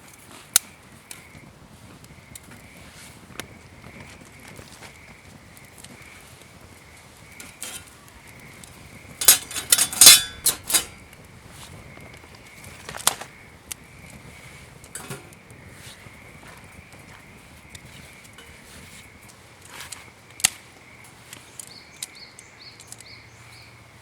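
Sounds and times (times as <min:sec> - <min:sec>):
metal cookware clattering: 0:07.4 - 0:07.9, 0:09.2 - 0:10.9, 0:14.9 - 0:15.3.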